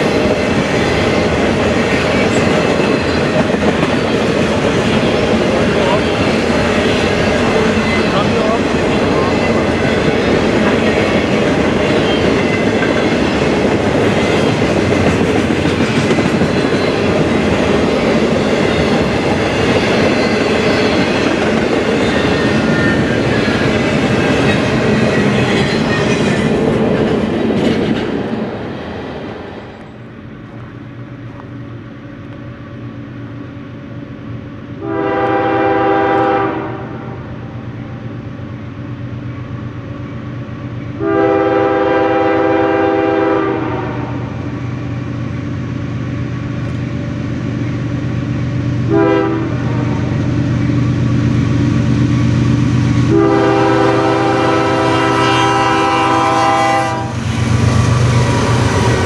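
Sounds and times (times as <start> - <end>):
train wheels clattering on rail: 0.0 - 31.6, 39.2 - 59.0
train horn blast: 34.8 - 37.2, 41.0 - 44.3, 48.9 - 50.2, 53.1 - 57.2.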